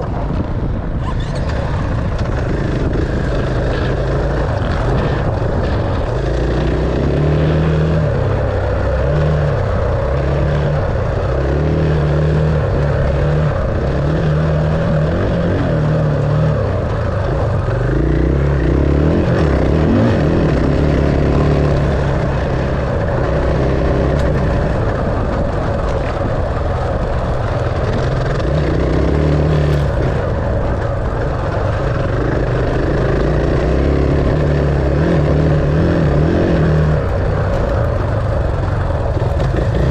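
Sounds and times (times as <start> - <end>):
steady rushing noise: 0.0 - 39.9
dirt bike engine revving: 1.1 - 39.9.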